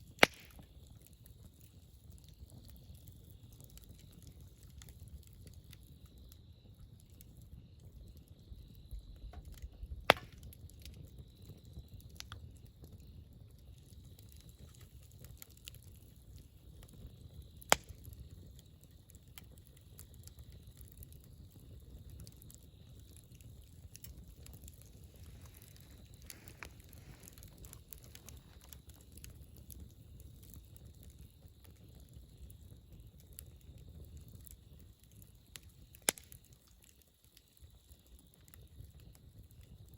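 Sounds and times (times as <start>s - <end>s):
campfire crackling: 0.0s - 39.9s
loud sharp pops: 0.2s - 0.6s, 10.1s - 10.4s.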